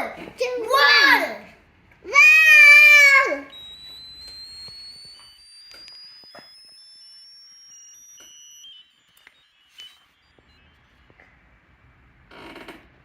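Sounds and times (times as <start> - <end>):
short stepped beeps: 3.5 - 11.7
rising electronic tone: 3.5 - 12.3.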